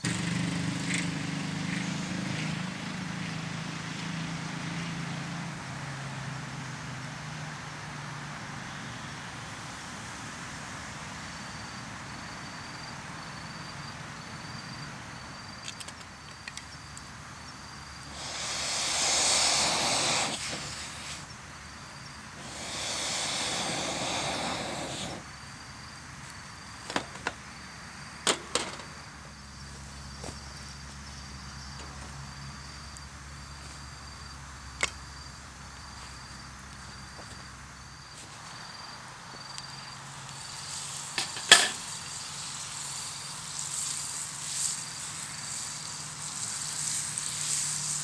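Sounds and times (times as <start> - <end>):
insects chirping: 4.4 - 48.0
loud hissing whooshes: 18.0 - 25.7, 40.0 - 48.0.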